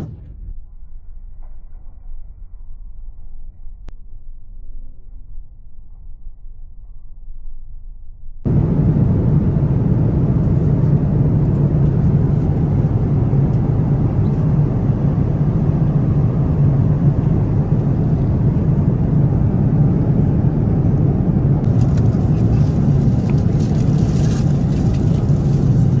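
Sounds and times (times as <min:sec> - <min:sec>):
airliner cabin engine rumble: 0:00.0 - 0:00.4, 0:08.5 - 0:26.0.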